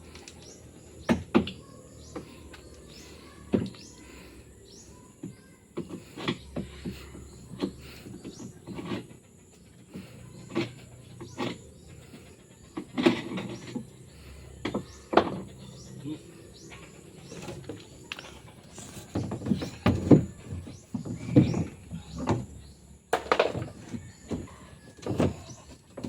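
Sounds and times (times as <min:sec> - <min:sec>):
sharp knocks and clatter: 0:16.7 - 0:26.0.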